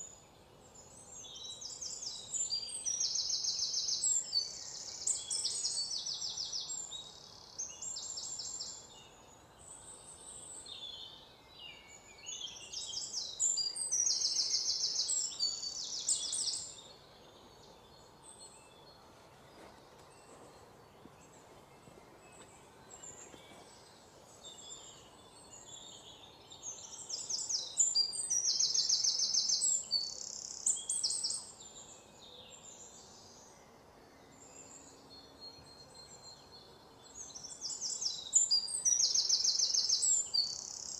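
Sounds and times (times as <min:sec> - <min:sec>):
faint steady background hiss: 0:00.0 - 0:40.9.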